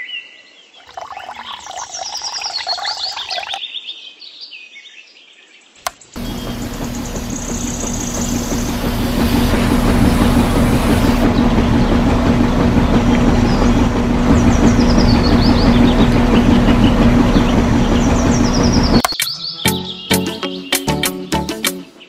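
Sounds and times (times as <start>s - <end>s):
small electric motor and gears humming: 5.9s - 19.0s.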